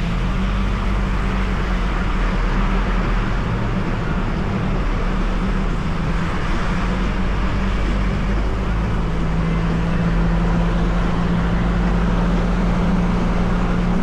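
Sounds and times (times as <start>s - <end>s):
engine and tyre drone: 0.0s - 14.0s.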